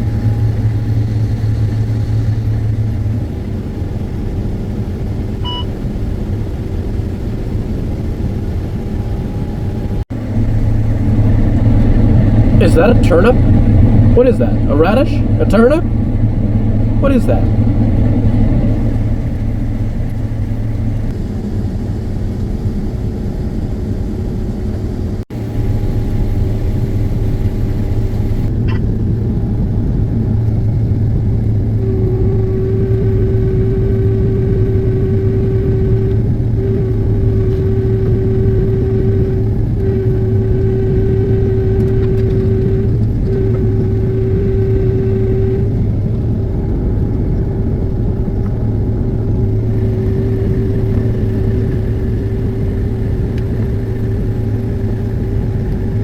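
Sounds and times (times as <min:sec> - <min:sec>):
combine harvester drone: 0:00.0 - 0:56.0
high-pitched tone: 0:10.2 - 0:21.1, 0:31.8 - 0:46.4, 0:49.0 - 0:55.4.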